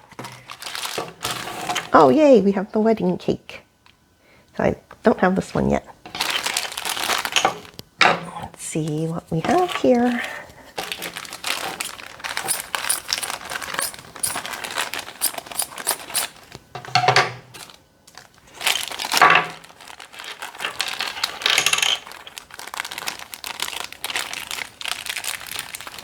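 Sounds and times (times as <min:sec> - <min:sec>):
plastic packaging crinkling: 0:00.1 - 0:01.5, 0:06.2 - 0:07.8, 0:10.8 - 0:16.5, 0:17.6 - 0:26.0.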